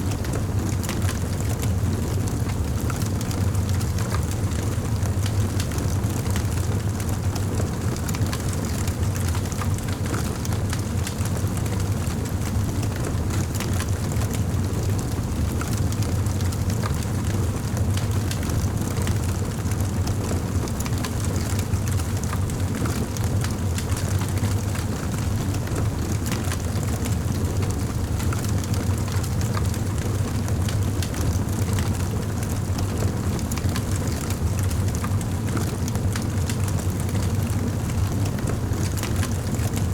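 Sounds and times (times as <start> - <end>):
wood fire crackling and popping: 19.1 - 37.2, 37.8 - 39.8.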